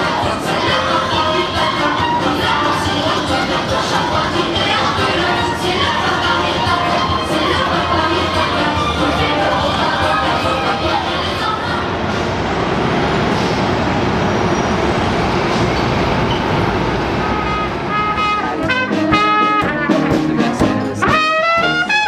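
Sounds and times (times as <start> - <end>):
brass instruments playing: 0.0 - 11.1, 17.2 - 22.0
street noise: 0.0 - 22.0.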